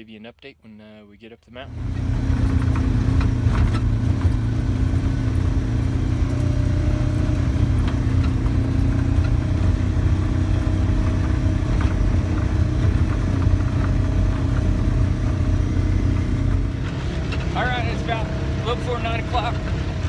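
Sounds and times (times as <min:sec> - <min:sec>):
vehicle engine and road rumble: 0:01.6 - 0:20.0
small rattles and knocks: 0:01.9 - 0:17.6.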